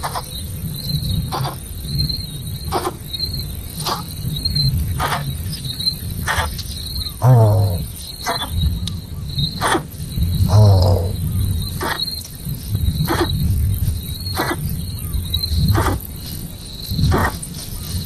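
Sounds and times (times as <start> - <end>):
crickets chirping: 0.0 - 18.0
loud squealing calls: 7.2 - 8.6, 10.5 - 12.1.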